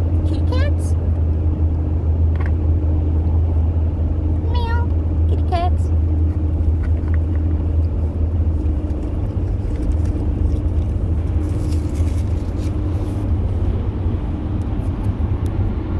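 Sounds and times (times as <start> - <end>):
car road and engine rumble: 0.0 - 15.9.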